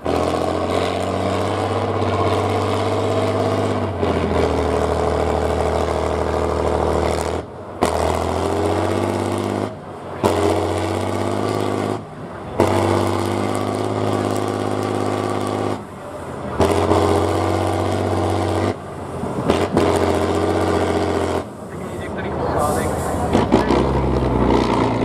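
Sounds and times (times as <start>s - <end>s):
diesel truck engine under load: 0.0s - 25.0s.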